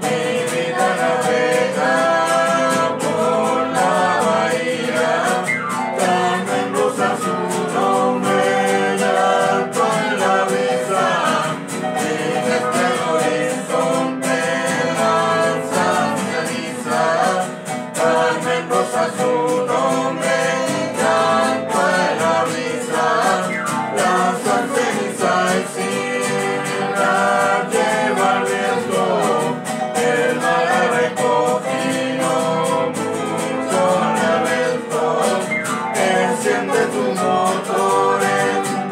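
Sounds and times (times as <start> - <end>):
strummed acoustic guitar: 0.0 - 38.9
voices singing folk song: 0.0 - 38.9.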